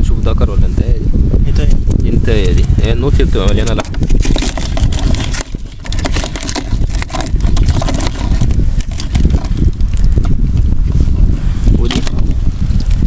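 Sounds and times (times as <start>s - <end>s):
wind buffeting microphone: 0.0s - 13.0s
clicks and scrapes: 1.9s - 10.6s, 11.7s - 13.0s.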